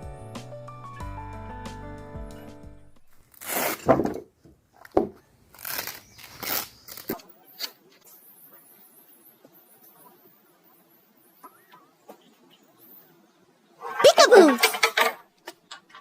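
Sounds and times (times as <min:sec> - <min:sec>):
background music: 0:00.0 - 0:03.1.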